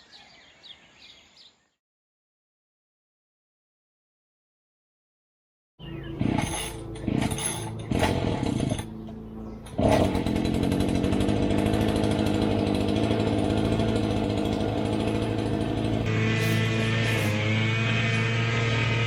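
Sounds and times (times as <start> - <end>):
string trimmer engine sputtering: 6.2 - 19.0.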